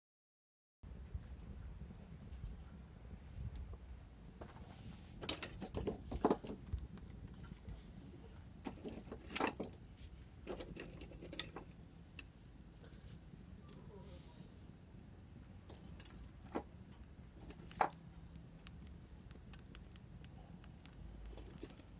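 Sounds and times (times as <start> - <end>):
wood fire crackling: 0.9 - 21.9
sharp pops of burning wood: 5.2 - 7.5, 15.0 - 21.9.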